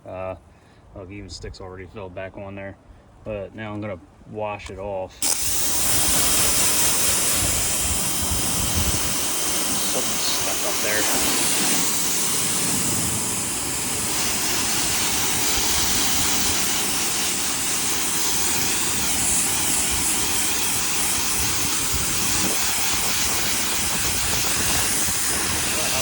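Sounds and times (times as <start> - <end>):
pressure washer spraying water: 5.2 - 26.0.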